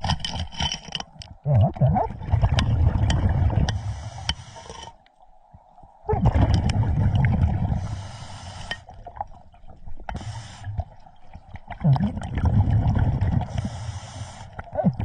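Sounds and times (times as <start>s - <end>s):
air bubbling underwater: 1.4s - 3.7s, 6.0s - 7.9s, 11.7s - 13.6s
diver breathing through regulator: 3.7s - 5.0s, 7.6s - 8.9s, 10.1s - 10.8s, 13.4s - 14.7s.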